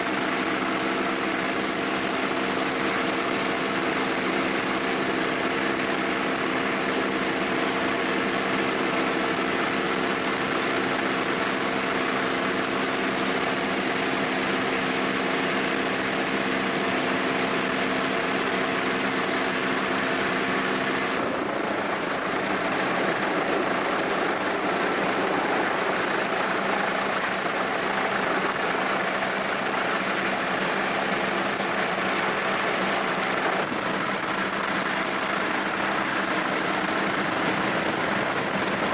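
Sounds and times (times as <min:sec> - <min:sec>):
machinery hum of steady tones: 0:00.0 - 0:38.9
rushing noise: 0:19.3 - 0:38.9.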